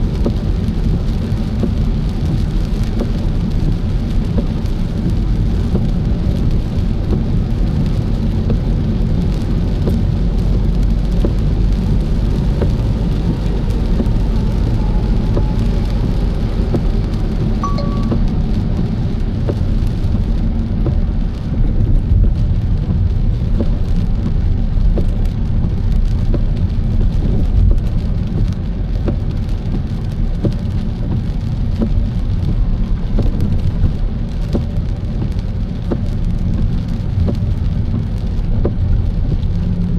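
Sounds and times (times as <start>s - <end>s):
rain hitting car: 0.0s - 39.9s
road and engine rumble: 0.0s - 39.9s
brief single tone: 17.6s - 18.3s.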